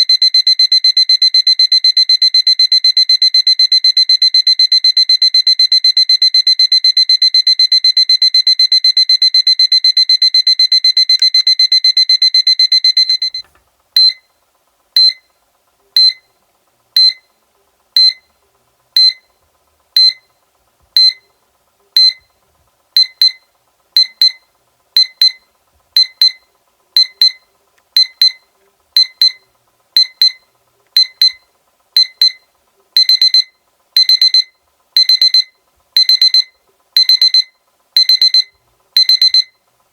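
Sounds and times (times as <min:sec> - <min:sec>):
electronic alarm clock beeping: 0:00.0 - 0:14.3, 0:15.0 - 0:15.3, 0:16.0 - 0:16.3, 0:17.0 - 0:17.3, 0:18.0 - 0:18.3, 0:19.0 - 0:19.3, 0:20.0 - 0:20.3, 0:21.0 - 0:21.2, 0:22.0 - 0:22.2, 0:23.0 - 0:39.6.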